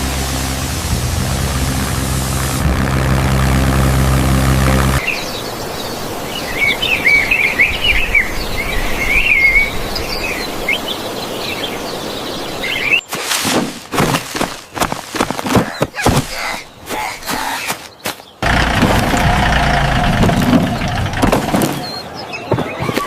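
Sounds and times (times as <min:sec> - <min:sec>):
tractor engine running: 0:00.0 - 0:05.0, 0:18.4 - 0:21.9
birds chirping: 0:14.1 - 0:23.0.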